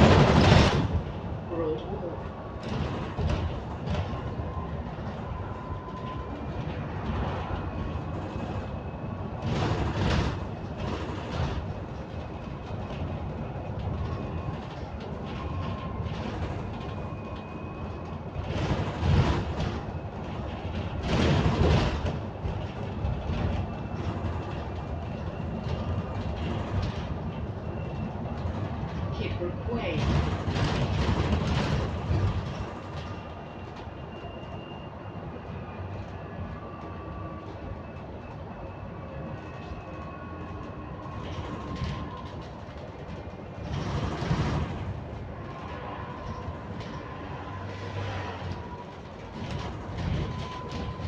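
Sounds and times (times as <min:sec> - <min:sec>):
bus bumps: 0:00.0 - 0:51.0
bus rumbling with rattles: 0:00.0 - 0:51.0.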